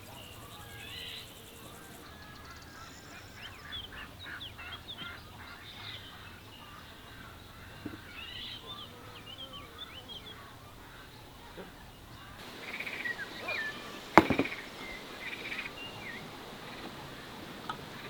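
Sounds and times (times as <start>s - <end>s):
birds chirping: 0.0s - 18.0s
sharp knock: 14.2s - 14.6s.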